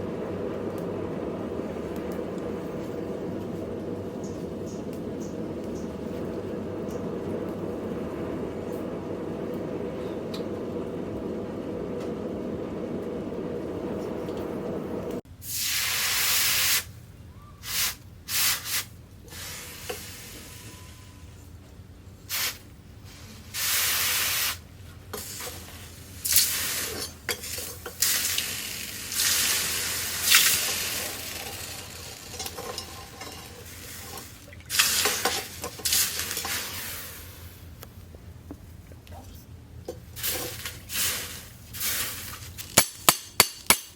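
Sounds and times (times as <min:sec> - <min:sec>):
low hum: 0:00.0 - 0:15.2
bursts of hissing: 0:15.4 - 0:16.9, 0:17.6 - 0:20.6, 0:22.3 - 0:24.6, 0:40.2 - 0:42.4.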